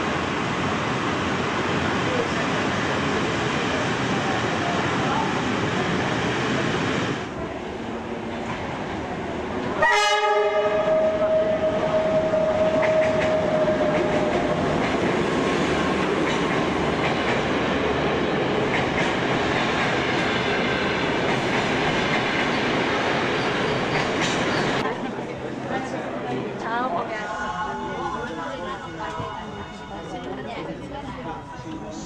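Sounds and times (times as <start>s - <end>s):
rumble of moving train carriages: 0.2s - 32.0s
locomotive horn: 9.8s - 13.1s.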